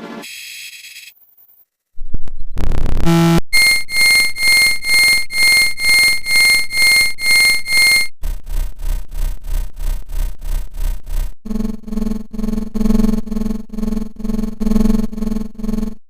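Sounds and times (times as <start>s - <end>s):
fast rough pulsing sound: 2.5s - 16.0s
pulsing bell-like alarm ringing: 3.6s - 8.1s.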